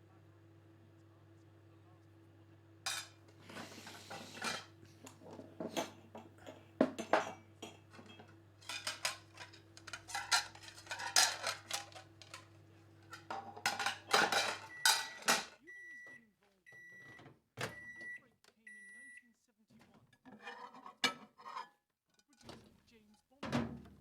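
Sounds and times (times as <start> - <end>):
plates and cutlery clattering: 2.9 - 15.6, 20.3 - 22.6.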